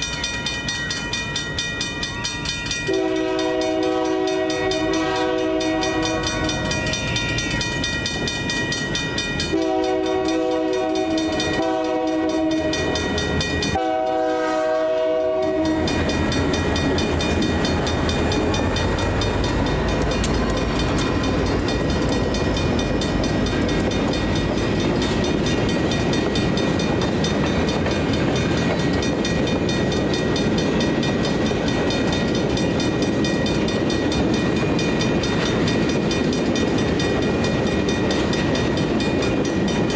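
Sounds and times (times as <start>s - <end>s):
crossing bell ringing: 0.0s - 39.9s
train rumble and wheel noise: 0.0s - 39.9s
locomotive horn blasts: 2.9s - 6.7s, 9.5s - 13.0s, 13.8s - 16.1s.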